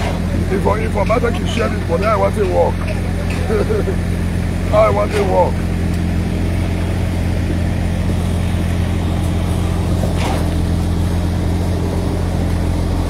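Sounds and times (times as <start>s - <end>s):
engine droning steadily: 0.0s - 13.0s.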